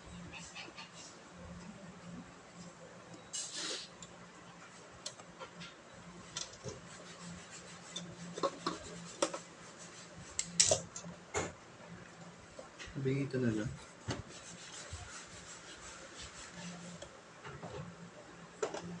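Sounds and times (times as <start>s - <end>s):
hands rubbing scrape: 6.7s - 10.5s, 13.9s - 17.0s.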